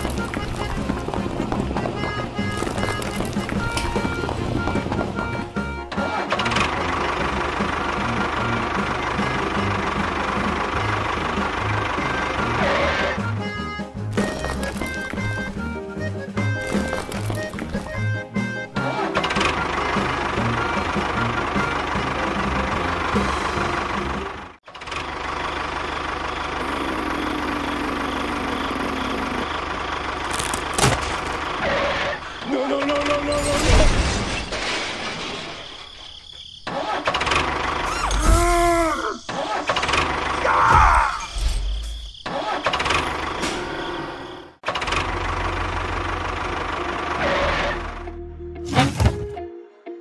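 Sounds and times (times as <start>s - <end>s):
small engine running: 0.0s - 15.8s, 16.4s - 32.3s, 44.6s - 48.2s.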